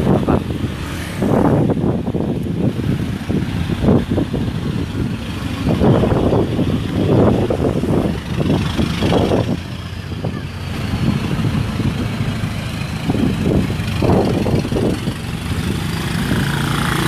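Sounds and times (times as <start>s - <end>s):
car engines idling: 0.0s - 17.0s
engine revving bursts: 3.8s - 17.0s.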